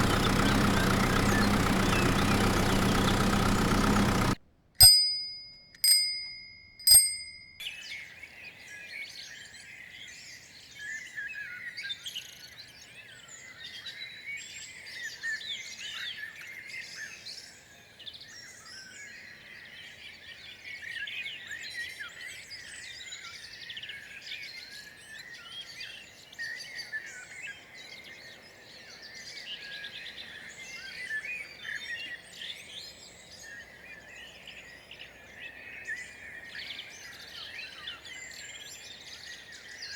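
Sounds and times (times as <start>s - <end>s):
birds chirping and calling: 0.0s - 4.4s
bell ringing: 4.8s - 7.6s.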